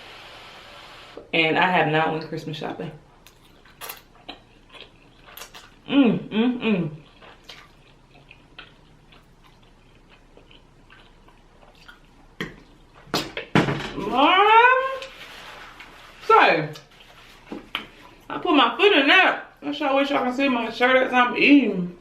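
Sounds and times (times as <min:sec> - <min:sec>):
chewing: 0:03.2 - 0:05.9, 0:06.9 - 0:13.5
person humming mm: 0:05.9 - 0:07.0.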